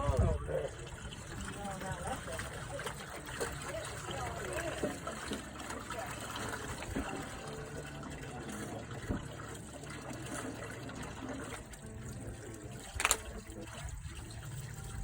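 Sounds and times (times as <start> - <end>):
running water splashing: 0.0 - 15.0.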